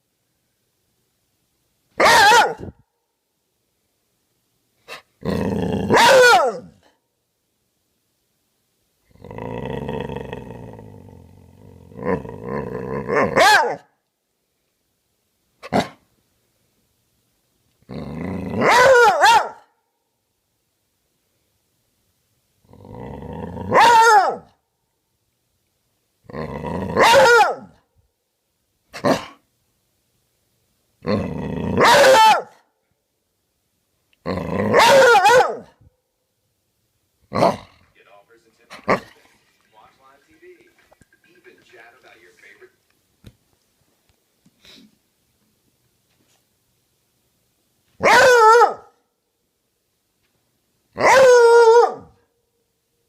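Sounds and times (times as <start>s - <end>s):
dog yelping: 2.0s - 2.7s, 5.9s - 6.7s, 13.2s - 13.8s, 18.6s - 19.6s, 23.7s - 24.5s, 27.0s - 27.7s, 31.8s - 32.5s, 34.7s - 35.7s, 48.0s - 48.9s, 51.0s - 52.1s
dog bark: 2.0s - 2.8s, 5.9s - 6.8s, 13.2s - 13.9s, 15.6s - 16.0s, 18.6s - 19.8s, 23.7s - 24.5s, 27.0s - 27.8s, 29.0s - 29.4s, 31.8s - 32.6s, 34.7s - 35.8s, 48.0s - 49.0s, 51.0s - 52.2s
dog growling and bark-howling: 2.0s - 2.8s, 4.9s - 6.9s, 9.1s - 13.9s, 17.8s - 19.6s, 22.6s - 24.6s, 26.2s - 27.8s, 29.0s - 29.4s, 31.0s - 32.6s, 34.2s - 35.8s, 37.3s - 37.8s, 48.0s - 48.9s, 51.0s - 52.2s.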